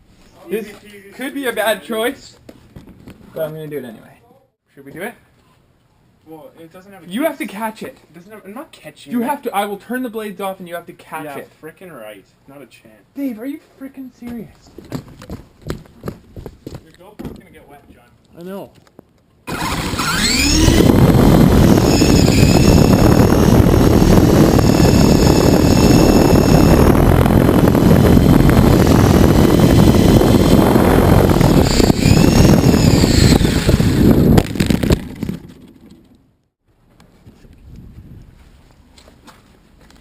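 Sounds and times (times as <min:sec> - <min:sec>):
rotor-wash rumble: 0:19.5 - 0:34.8
rc helicopter motor whine: 0:19.5 - 0:35.3.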